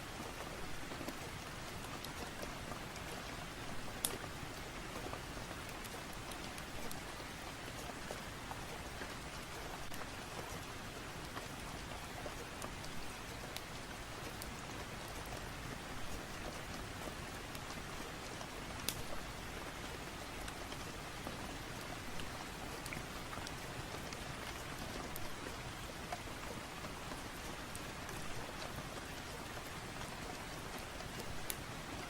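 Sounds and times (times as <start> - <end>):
steady rain: 0.0 - 32.0.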